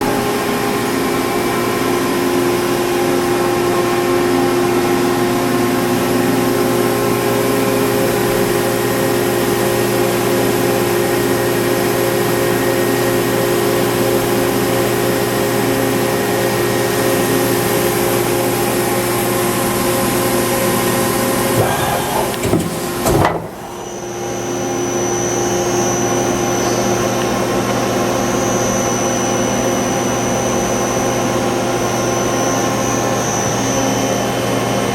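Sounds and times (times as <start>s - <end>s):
lathe mechanical hum: 20.0s - 30.4s
knocks: 21.6s - 23.9s.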